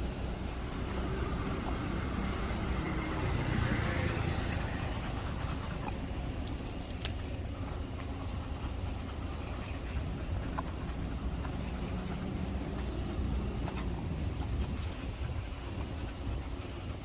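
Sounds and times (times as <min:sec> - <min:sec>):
car passing by: 0:00.9 - 0:05.6.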